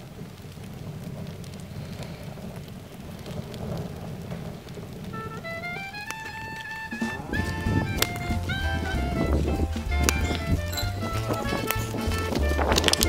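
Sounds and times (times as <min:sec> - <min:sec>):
wood fire crackling: 0:00.0 - 0:13.0
music: 0:05.2 - 0:13.0.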